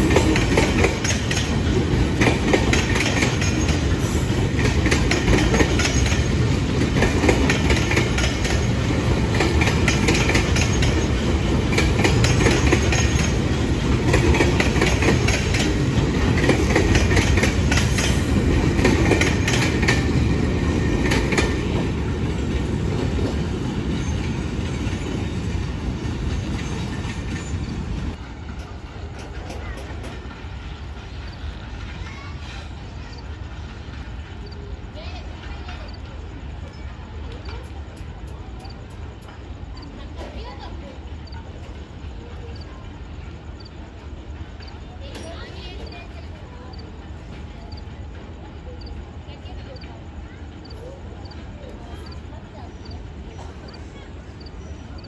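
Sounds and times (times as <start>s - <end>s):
wheels clicking over rail joints: 0.0s - 42.6s, 44.0s - 55.0s
train wheels rumbling on track: 0.0s - 55.0s.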